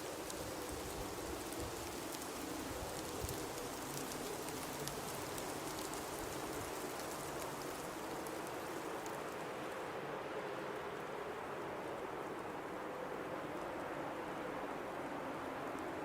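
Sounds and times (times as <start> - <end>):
faint ticks: 0.1 - 9.4.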